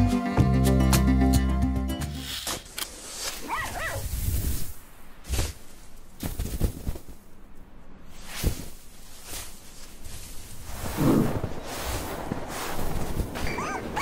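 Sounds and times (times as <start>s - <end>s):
soft rustles and thuds: 4.0s - 7.4s, 8.1s - 13.6s.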